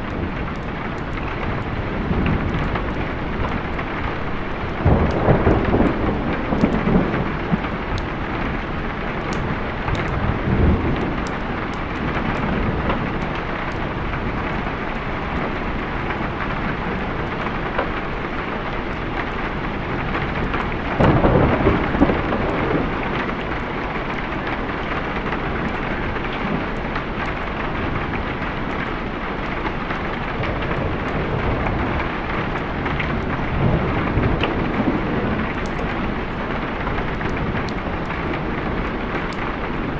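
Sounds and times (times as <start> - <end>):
heavy rain: 0.0 - 39.9
rolling thunder: 0.0 - 39.9.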